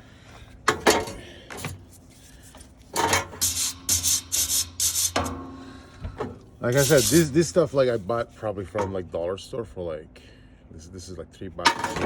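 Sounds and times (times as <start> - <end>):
wire brush scraping metal pipe: 2.0 - 5.4, 6.6 - 8.1.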